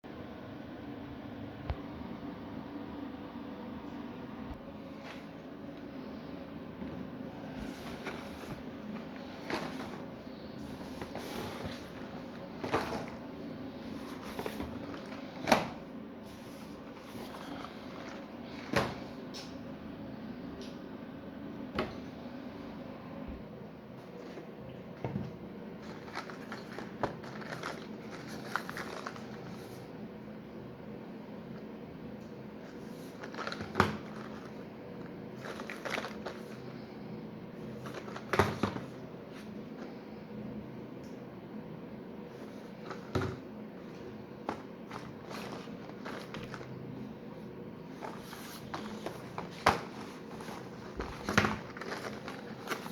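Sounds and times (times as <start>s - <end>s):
steady low hum: 0.0s - 52.9s
packaging knocks and rustling: 7.6s - 13.3s, 14.0s - 15.8s, 25.1s - 29.6s, 32.7s - 36.8s, 37.6s - 39.0s, 42.4s - 46.8s, 47.9s - 52.9s.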